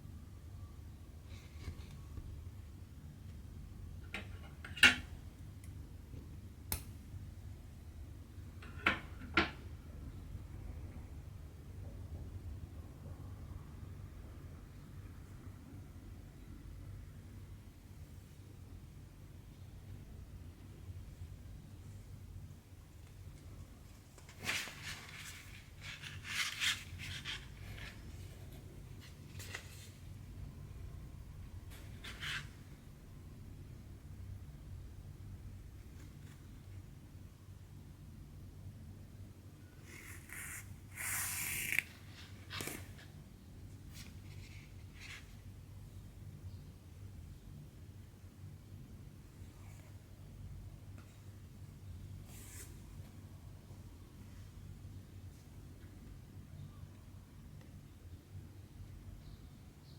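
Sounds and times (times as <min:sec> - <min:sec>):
needle and thread through fabric: 0:39.8 - 0:43.0.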